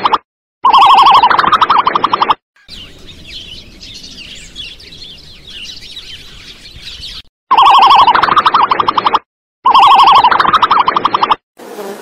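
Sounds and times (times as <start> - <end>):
small birds chirping: 2.6 - 7.3.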